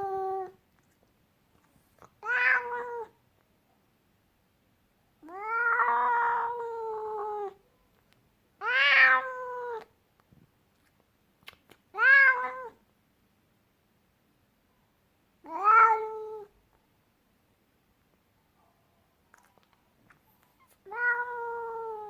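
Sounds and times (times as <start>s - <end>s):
cat yowling angrily: 2.2s - 3.1s, 5.3s - 7.6s, 8.6s - 9.8s, 12.0s - 12.7s, 20.8s - 22.0s.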